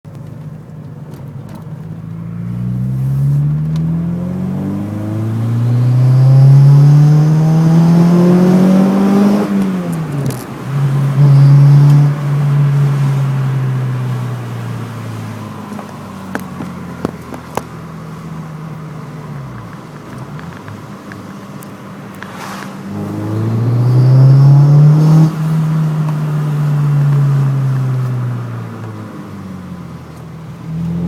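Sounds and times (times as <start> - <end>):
car engine accelerating: 0.1 - 31.0
sucking noise: 22.2 - 25.6.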